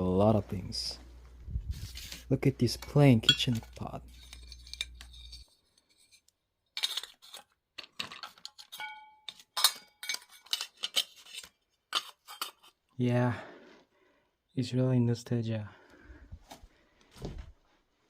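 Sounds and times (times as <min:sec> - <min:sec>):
metal kitchenware knocks and clinks: 0:08.6 - 0:10.7
struck pot ringing: 0:08.8 - 0:09.8.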